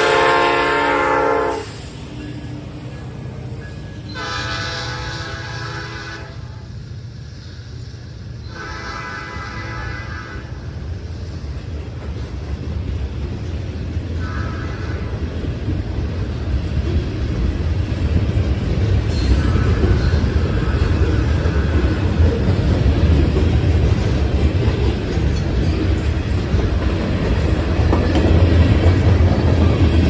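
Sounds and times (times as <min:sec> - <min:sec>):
train horn notes: 0:00.0 - 0:01.8, 0:04.1 - 0:06.8, 0:08.5 - 0:10.6, 0:14.2 - 0:15.1
freight train rumbling: 0:00.0 - 0:30.0.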